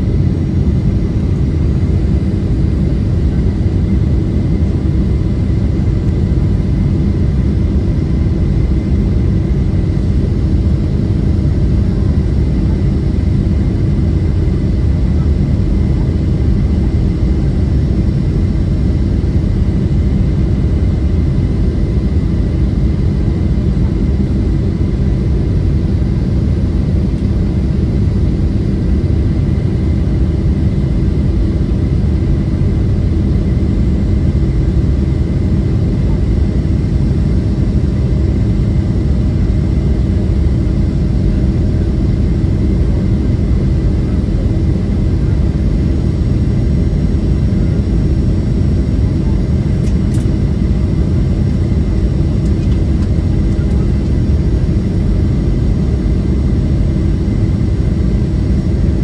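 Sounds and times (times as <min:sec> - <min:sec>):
airplane cabin jet engine rush: 0:00.0 - 0:59.0.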